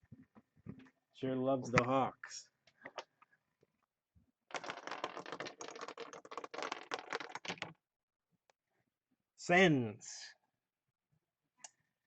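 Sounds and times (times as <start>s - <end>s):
game piece clattering across board: 4.5s - 7.8s.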